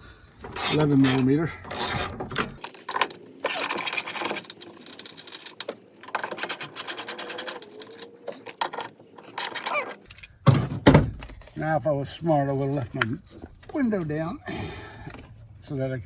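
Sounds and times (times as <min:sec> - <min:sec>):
ratchet wrench clicking: 0:00.6 - 0:10.3.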